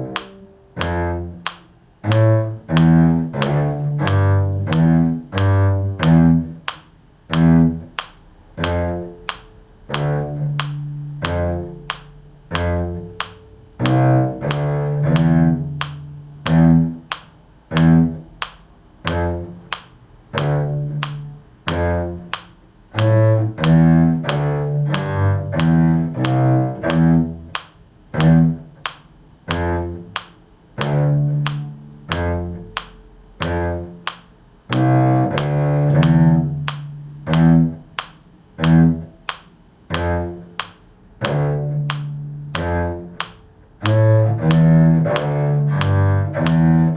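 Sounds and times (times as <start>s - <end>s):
low string bass line: 0.0s - 46.9s.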